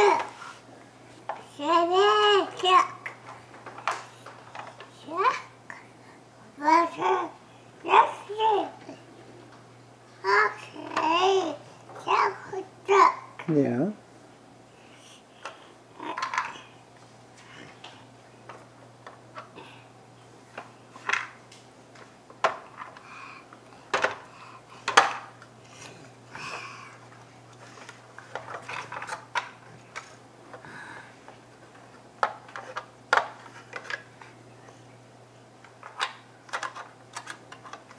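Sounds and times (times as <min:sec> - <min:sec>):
toy trucks clacking and scraping: 0:15.4 - 0:16.7, 0:35.8 - 0:37.9.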